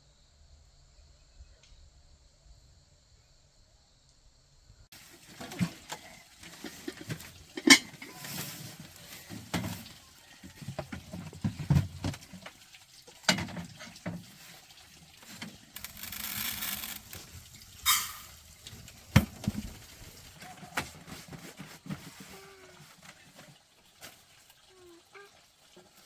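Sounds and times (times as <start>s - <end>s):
objects knocking and clattering: 5.2s - 12.5s.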